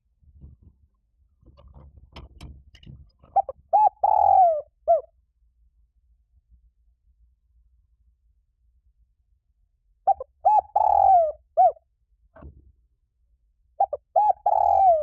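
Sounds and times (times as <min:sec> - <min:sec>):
dove cooing: 0:03.2 - 0:05.1, 0:10.1 - 0:11.8, 0:13.8 - 0:15.0.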